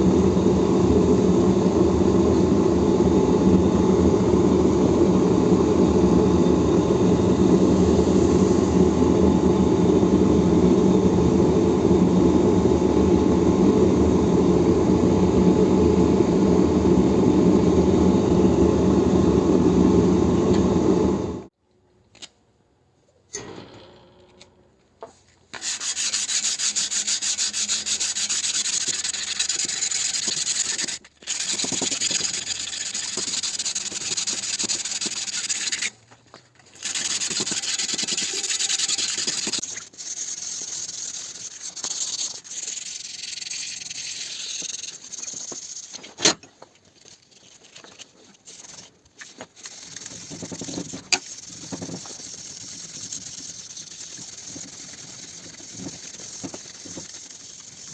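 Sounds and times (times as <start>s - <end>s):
sanding hiss: 25.6s - 35.9s, 36.8s - 46.2s, 48.4s - 57.9s.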